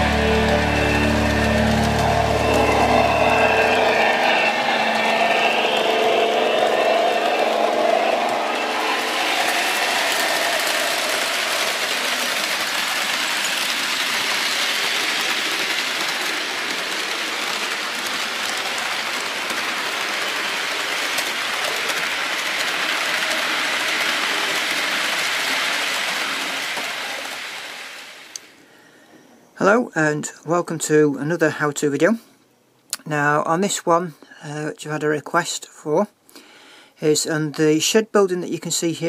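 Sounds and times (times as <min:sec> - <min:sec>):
train running: 0:00.0 - 0:28.6.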